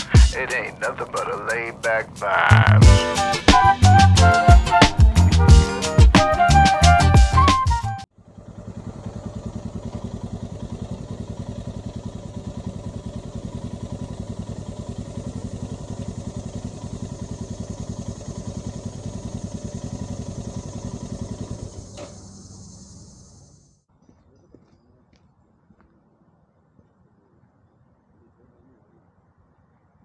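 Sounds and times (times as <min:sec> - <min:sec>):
motorcycle engine thumping: 0:08.2 - 0:23.4.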